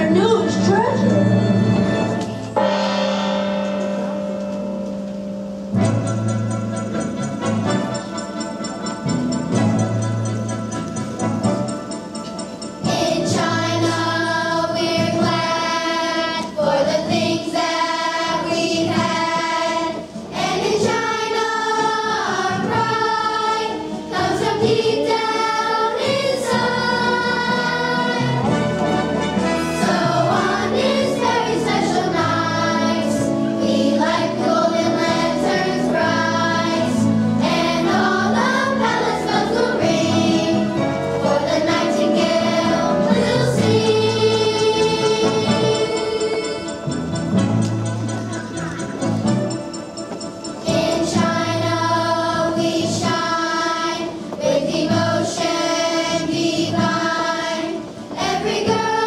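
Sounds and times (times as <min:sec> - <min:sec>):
children's choir singing: 0:11.9 - 0:59.0.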